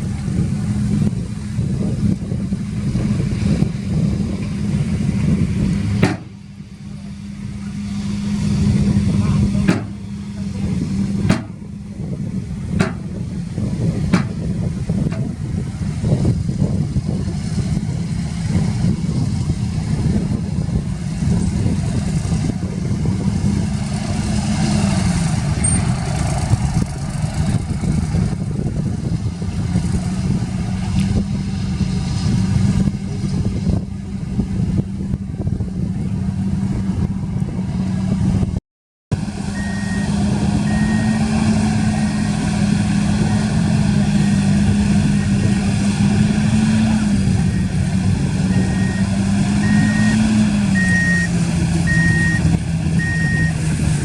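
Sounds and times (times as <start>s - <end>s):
heavy diesel engines running: 0.0s - 54.0s
reversing alarm beeping: 39.5s - 41.3s, 48.5s - 53.6s.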